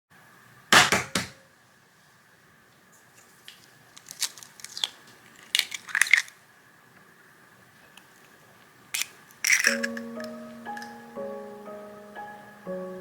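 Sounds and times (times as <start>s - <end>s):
crinkling and crunching handling: 3.1s - 6.5s, 7.8s - 10.1s.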